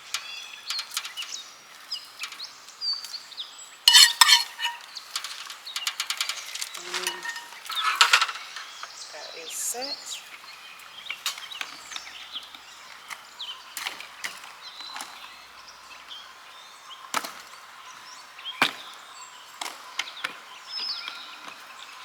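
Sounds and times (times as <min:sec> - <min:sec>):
cookware clattering: 0:03.9 - 0:04.8, 0:06.8 - 0:08.8.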